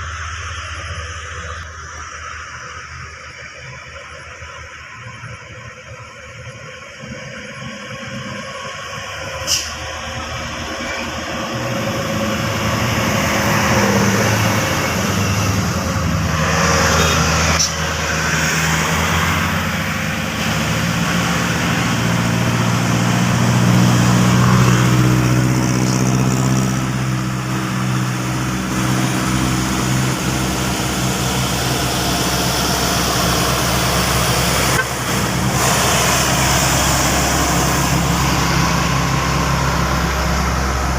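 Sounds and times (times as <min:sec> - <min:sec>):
diesel truck engine at low revs: 0:00.0 - 0:40.9
short hiss: 0:09.4 - 0:09.8.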